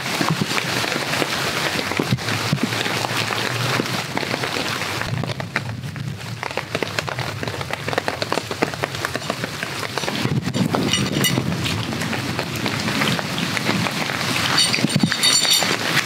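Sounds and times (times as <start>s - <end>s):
rain falling on forest canopy: 0.0s - 16.0s
rustling of rain poncho: 0.0s - 16.0s
footsteps of walker: 14.5s - 15.7s.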